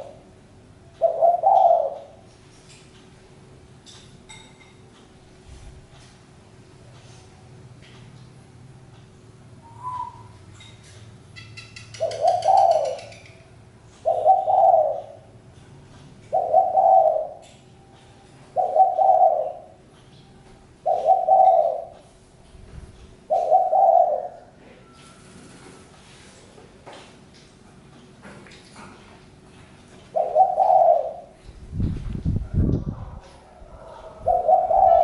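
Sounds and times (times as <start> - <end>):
dove cooing: 1.0 - 2.3, 9.6 - 10.4, 11.7 - 15.4, 16.3 - 17.5, 18.5 - 19.9, 20.8 - 22.0, 23.2 - 24.9, 30.1 - 31.4, 32.4 - 35.0.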